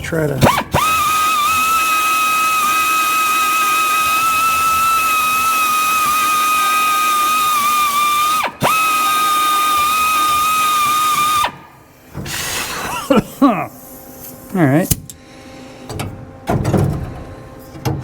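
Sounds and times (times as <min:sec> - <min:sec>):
high-speed power tool whine: 0:00.4 - 0:11.6.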